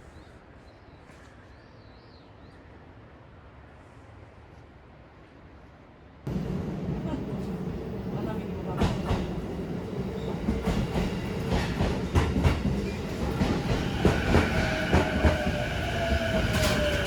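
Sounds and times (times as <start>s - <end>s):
cable car rumbling on track: 6.3s - 17.0s.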